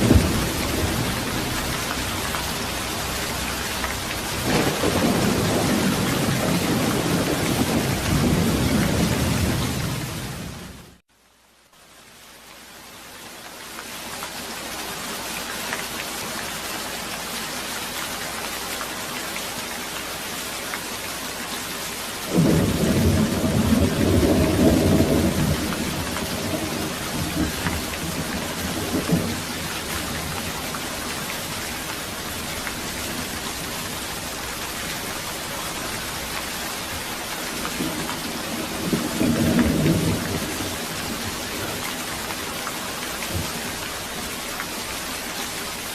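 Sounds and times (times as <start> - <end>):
rolling thunder rumble: 0.0 - 2.9, 4.2 - 10.7, 22.3 - 31.2, 37.6 - 41.7
rain hissing: 0.0 - 11.0, 11.7 - 45.9.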